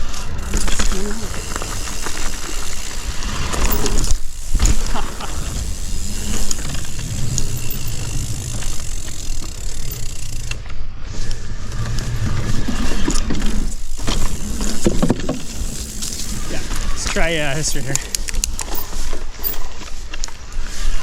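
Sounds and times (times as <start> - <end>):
bike chain rattling and clicking: 0.0 - 10.8, 13.0 - 20.8
bike tyres crunching on ground: 0.0 - 21.0
low rumble: 2.8 - 17.0.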